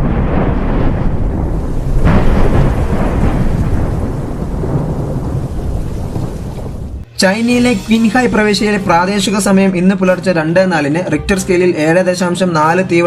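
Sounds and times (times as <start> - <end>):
deep rolling rumble: 0.0 - 10.4.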